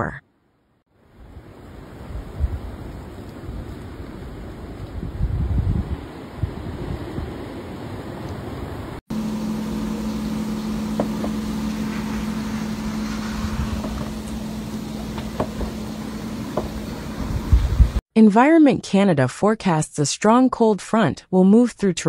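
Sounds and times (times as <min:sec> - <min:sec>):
wind noise: 0:01.2 - 0:08.2, 0:09.4 - 0:18.0
vehicle running hum: 0:09.1 - 0:18.0.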